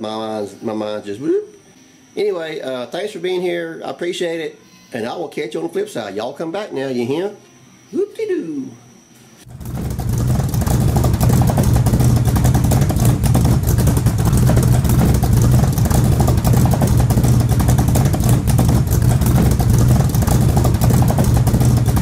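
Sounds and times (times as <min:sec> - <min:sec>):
vehicle engine running: 0:09.5 - 0:22.0.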